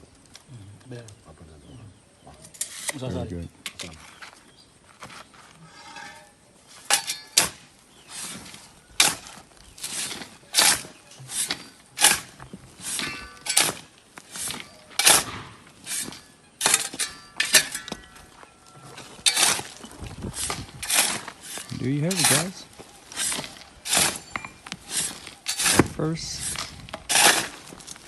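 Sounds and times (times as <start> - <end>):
hand tool scraping strokes: 5.0 - 28.0
sharp metallic clinks: 5.7 - 7.6, 9.9 - 27.5.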